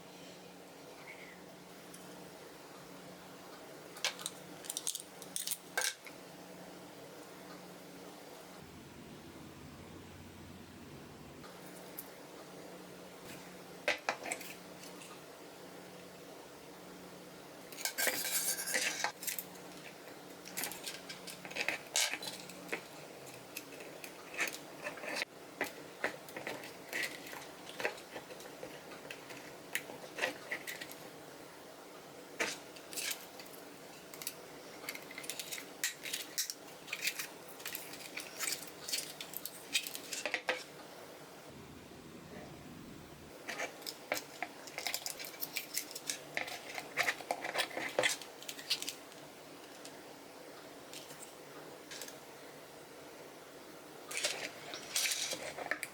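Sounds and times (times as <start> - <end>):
faint steady hum: 0.0 - 55.9
plastic parts clicking and clattering: 4.0 - 6.1, 17.8 - 31.0, 32.4 - 40.7, 43.5 - 50.0, 54.1 - 55.9.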